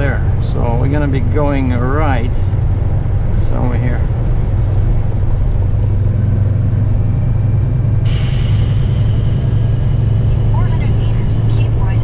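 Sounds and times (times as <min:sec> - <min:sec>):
road noise: 0:00.0 - 0:12.0
truck engine drone: 0:00.0 - 0:12.0.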